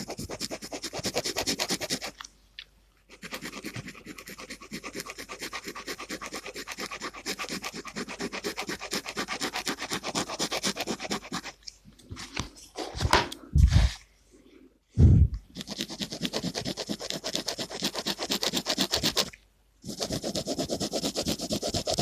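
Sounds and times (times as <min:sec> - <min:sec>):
pen scratching on paper: 0:00.0 - 0:02.2, 0:03.1 - 0:11.6, 0:15.5 - 0:22.0.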